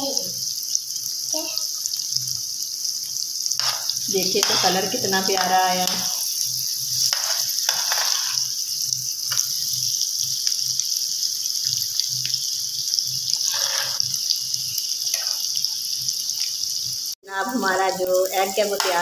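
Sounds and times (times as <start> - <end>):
egg and onion sizzling in a pan: 0.0 - 19.0
metal spoon scraping a pan: 3.6 - 6.3, 6.9 - 8.5, 13.3 - 14.2, 15.1 - 15.5.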